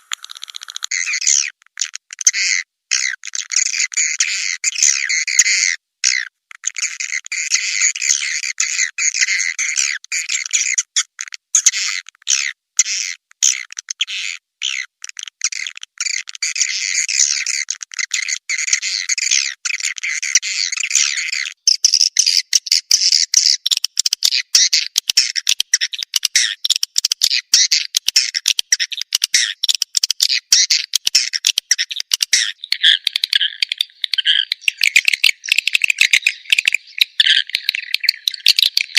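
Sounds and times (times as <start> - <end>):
swiftlet chirps and twittering: 0.0 - 1.3, 30.2 - 38.9.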